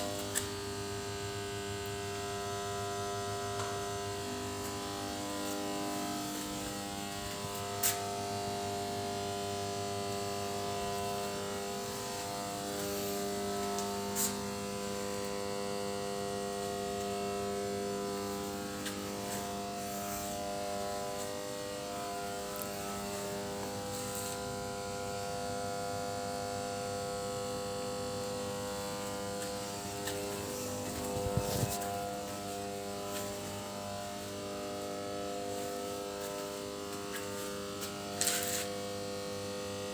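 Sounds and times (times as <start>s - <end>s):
generator humming: 0.0s - 39.9s.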